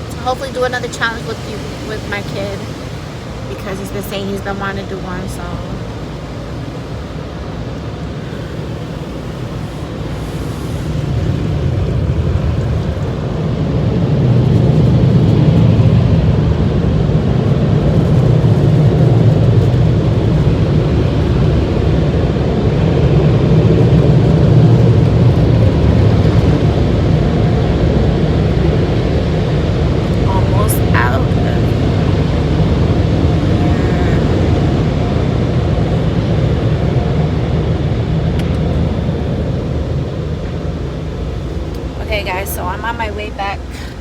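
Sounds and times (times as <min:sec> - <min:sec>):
car wash machinery roaring: 0:00.0 - 0:44.0.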